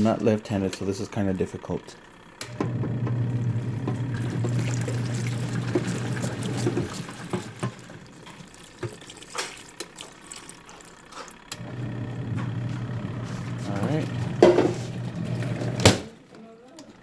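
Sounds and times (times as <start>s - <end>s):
washing machine hum: 0.0s - 17.0s
water pouring and splashing: 3.3s - 11.5s, 12.5s - 16.0s.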